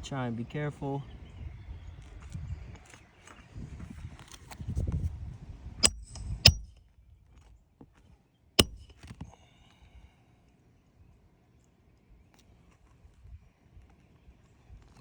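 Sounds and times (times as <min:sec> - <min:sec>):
hammer blows on nailing tool: 0:05.8 - 0:06.7, 0:08.6 - 0:08.9.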